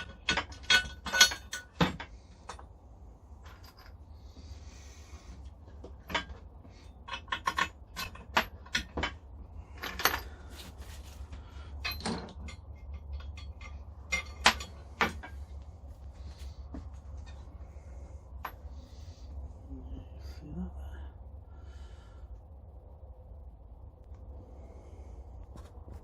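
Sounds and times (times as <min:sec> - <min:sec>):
metal tools clinking: 0:00.0 - 0:02.7, 0:03.4 - 0:04.1, 0:05.8 - 0:15.6
low steady hum: 0:00.0 - 0:26.0.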